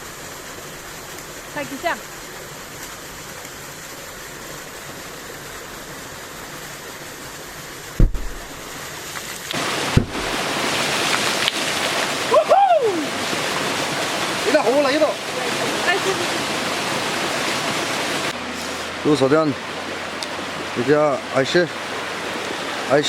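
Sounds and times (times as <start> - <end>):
stream water rushing: 0.0 - 23.0
sharp deep underwater thuds: 7.9 - 8.8, 9.6 - 10.9.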